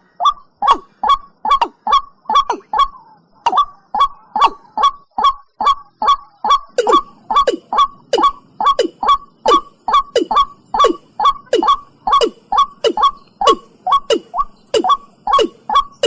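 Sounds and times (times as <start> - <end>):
bird calling hollow notes: 0.0 - 16.0.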